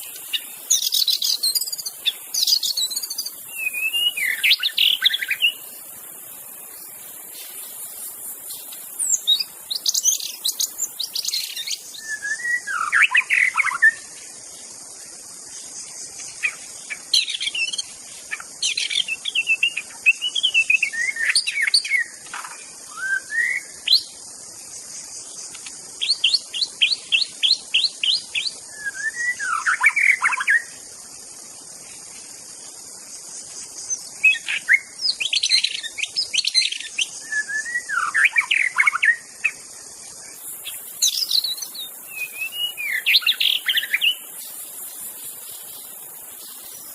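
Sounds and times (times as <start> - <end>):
bird singing whistled phrases: 0.0 - 5.7, 9.0 - 14.0, 18.8 - 22.2, 22.9 - 24.1, 26.0 - 30.7, 34.2 - 39.3, 41.0 - 44.2.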